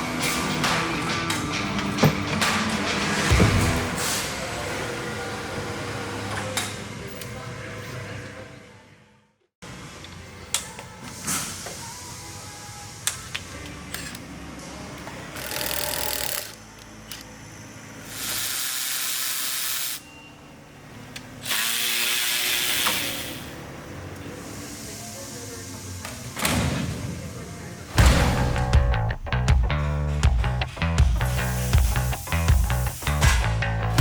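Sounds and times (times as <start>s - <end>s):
power tool running: 21.4s - 23.6s.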